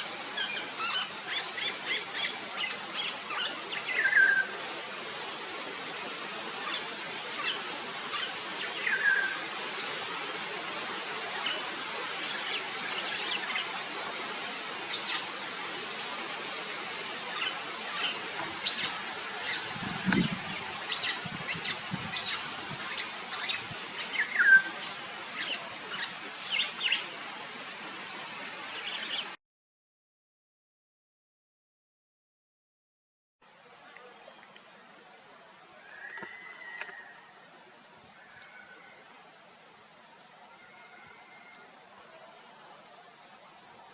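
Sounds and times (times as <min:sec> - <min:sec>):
background hiss: 0:00.0 - 0:29.4.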